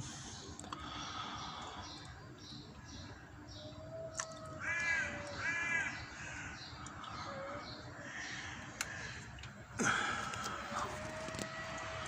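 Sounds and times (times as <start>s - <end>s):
bird cawing: 3.5s - 12.0s.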